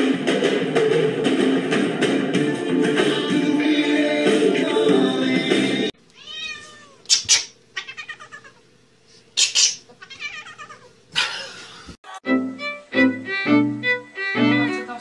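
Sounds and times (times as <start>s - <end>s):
music: 0.0s - 5.9s, 12.1s - 15.0s
cat meowing and yowling: 6.2s - 7.0s, 7.8s - 8.6s, 10.0s - 10.9s.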